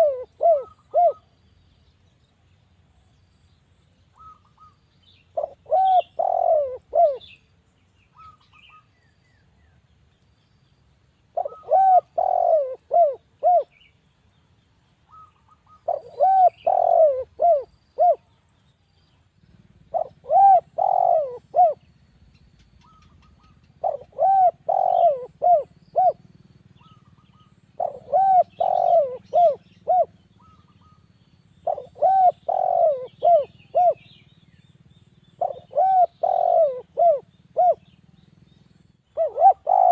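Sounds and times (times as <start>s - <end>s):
dove cooing: 0.0s - 1.4s, 4.1s - 7.4s, 11.3s - 13.8s, 15.1s - 18.4s, 19.5s - 21.9s, 22.6s - 34.3s, 35.4s - 38.0s, 39.1s - 39.9s
small birds chirping: 0.0s - 39.9s.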